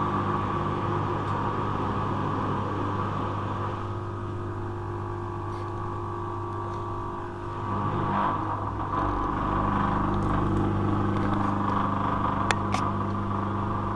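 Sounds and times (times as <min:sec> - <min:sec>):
washing machine spinning: 0:00.0 - 0:13.9.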